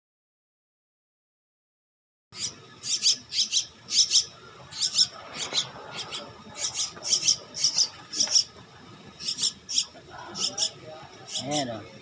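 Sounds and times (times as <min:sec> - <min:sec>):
birds squawking: 0:02.4 - 0:12.0.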